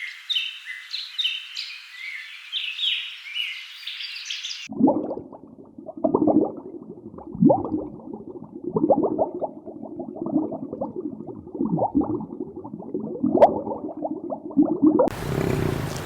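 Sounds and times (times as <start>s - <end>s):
animals calling: 15.1s - 16.0s.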